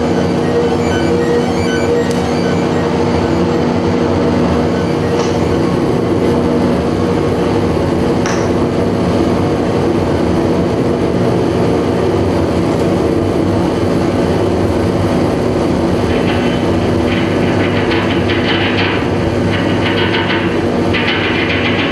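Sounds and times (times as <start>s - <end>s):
high crackling sounds: 0.0s - 6.0s
held droning tones: 0.0s - 8.2s.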